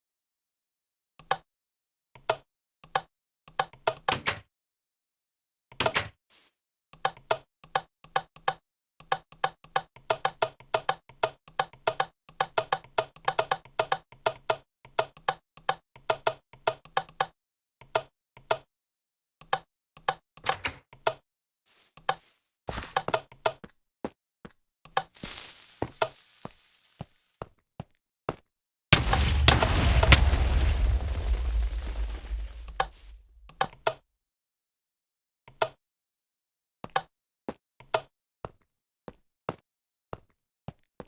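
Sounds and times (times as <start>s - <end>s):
burst of noise: 29.0s - 33.5s.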